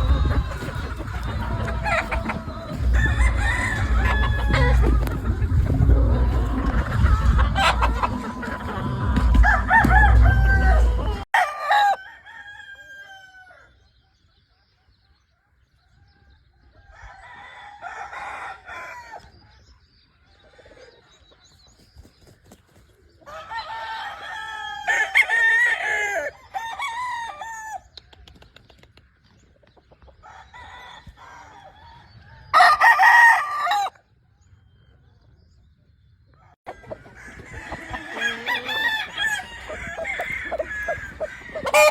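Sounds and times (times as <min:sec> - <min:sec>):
low rumble: 0:00.0 - 0:11.2
roosters crowing: 0:00.0 - 0:13.9, 0:15.9 - 0:19.6, 0:23.2 - 0:28.0, 0:30.2 - 0:34.1, 0:36.4 - 0:41.9.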